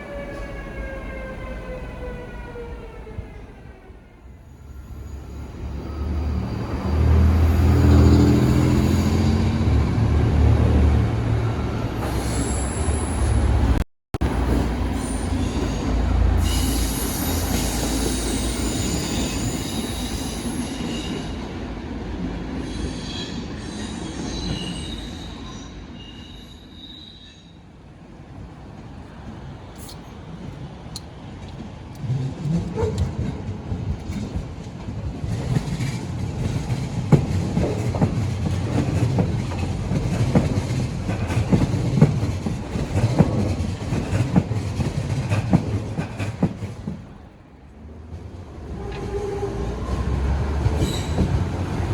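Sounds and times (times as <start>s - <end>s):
electric train rumbling: 0.0s - 51.9s
train wheel squeal: 4.4s - 9.8s, 11.7s - 13.7s, 14.8s - 21.5s, 22.6s - 27.7s, 48.8s - 51.9s
train wheels knocking on rail joints: 35.1s - 47.1s.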